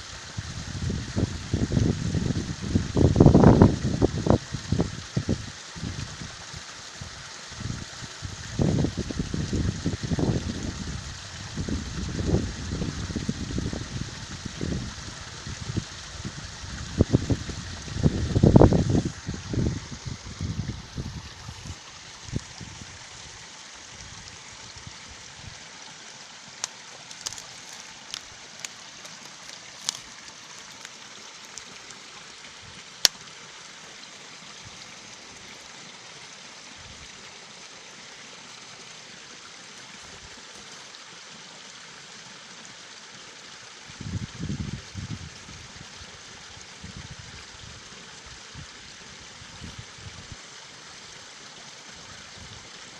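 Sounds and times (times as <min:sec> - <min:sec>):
stream water rushing: 0:00.0 - 0:52.9
wind buffeting microphone: 0:00.4 - 0:06.3, 0:07.0 - 0:22.9, 0:44.0 - 0:45.7.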